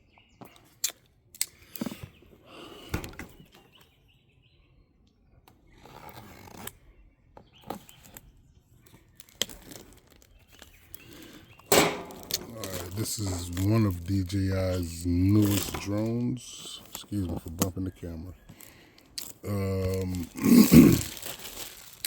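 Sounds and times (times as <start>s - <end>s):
sharp clicks and knocks: 11.7s - 12.5s
packaging rustling and sliding: 18.6s - 22.0s.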